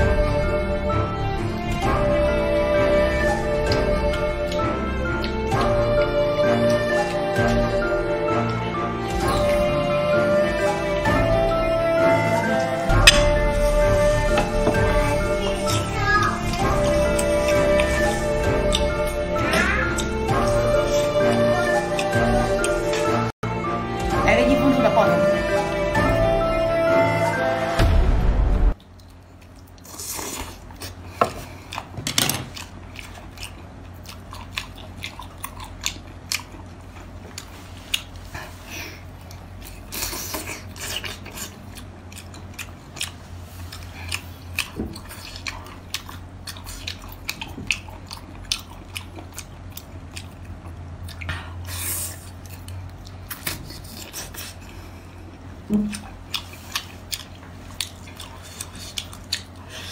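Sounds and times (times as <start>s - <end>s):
low steady hum: 0.0s - 59.9s
wet chewing and biting: 28.8s - 38.3s, 39.2s - 54.8s, 55.8s - 59.8s.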